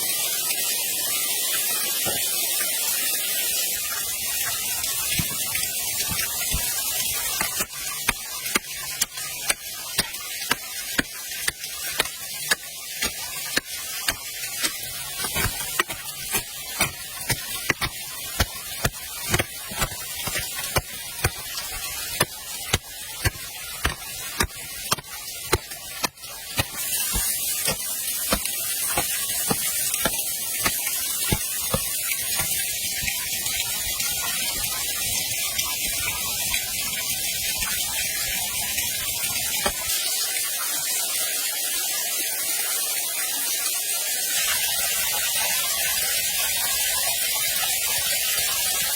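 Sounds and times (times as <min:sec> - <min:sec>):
waterfall rushing: 0:01.5 - 0:34.8.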